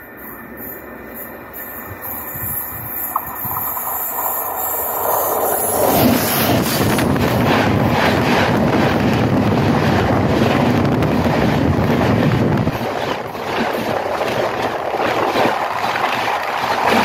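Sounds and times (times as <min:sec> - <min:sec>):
train wheel rumble and rushing air: 0:00.0 - 0:17.0.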